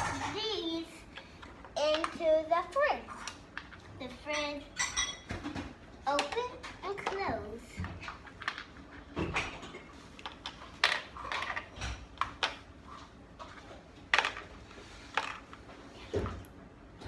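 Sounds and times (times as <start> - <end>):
plastic toy pieces clattering: 1.9 - 2.2.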